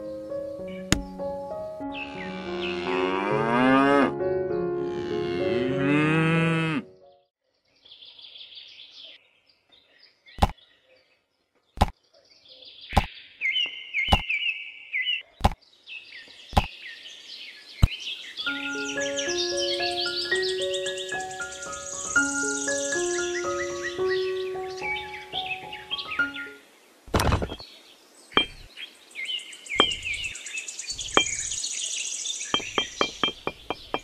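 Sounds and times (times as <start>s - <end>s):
cow mooing: 2.1s - 4.2s, 4.8s - 6.9s
faint bird chirps: 7.1s - 26.6s, 27.5s - 34.0s.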